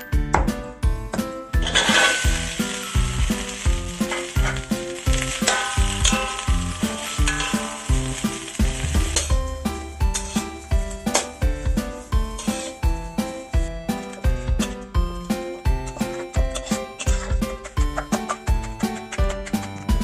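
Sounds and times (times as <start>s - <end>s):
background music with beat: 0.0s - 20.0s
food sizzling in a pan: 1.6s - 13.8s.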